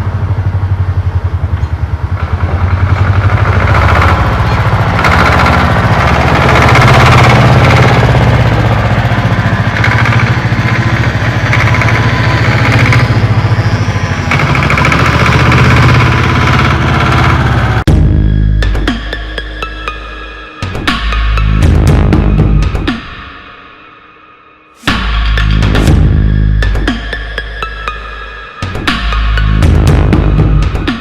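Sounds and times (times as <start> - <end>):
engine chugging: 0.0 - 20.2, 24.8 - 31.0.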